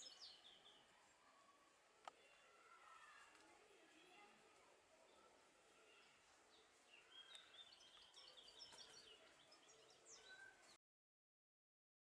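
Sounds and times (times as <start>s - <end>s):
faint bird chirps: 0.0s - 1.5s, 5.0s - 10.8s.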